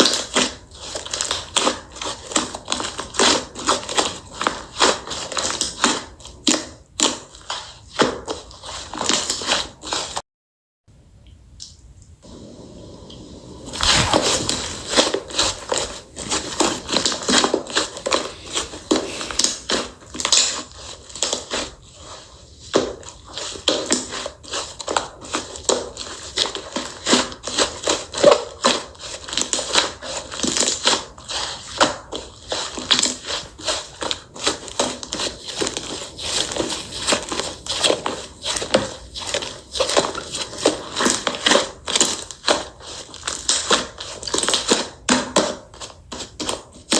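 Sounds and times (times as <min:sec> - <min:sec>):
slime crackling and popping: 0:13.7 - 0:20.6.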